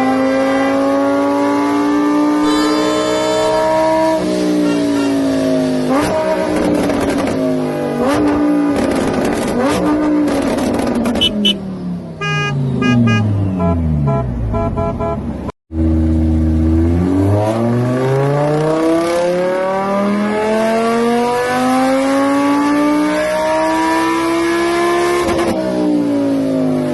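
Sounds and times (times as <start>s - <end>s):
car engine revving: 0.0s - 11.6s, 12.2s - 26.4s
quick pulsing tone: 2.4s - 4.0s.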